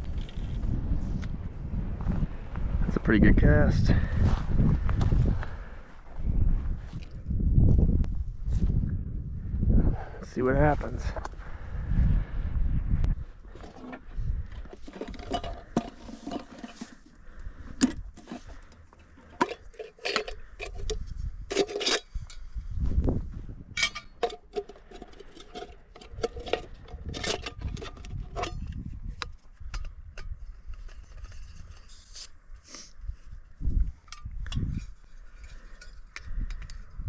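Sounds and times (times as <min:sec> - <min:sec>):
hard objects clinking and knocking: 0:14.6 - 0:17.1, 0:17.8 - 0:22.4, 0:23.8 - 0:28.8.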